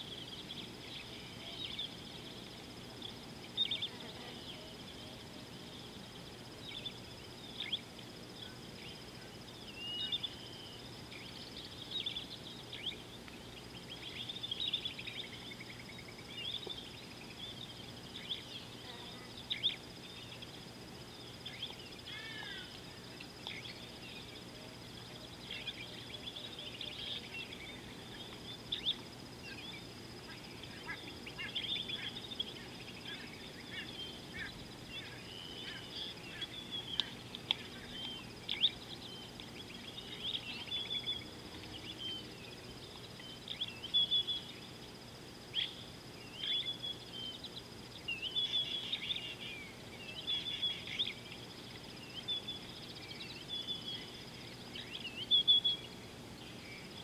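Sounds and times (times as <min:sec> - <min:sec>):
faint steady high tone: 0:00.0 - 0:13.1
wild birds chirping and calling: 0:00.0 - 0:57.0.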